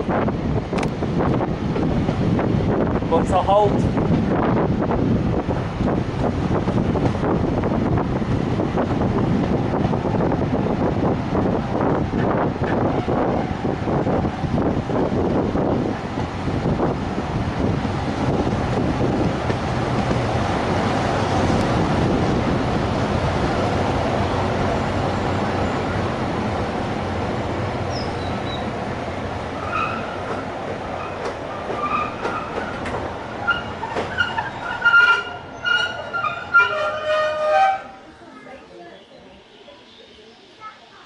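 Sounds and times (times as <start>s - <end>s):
train wheels rumbling on rails: 0.0s - 38.1s
wheel and brake squeals: 29.6s - 30.2s, 31.0s - 37.9s.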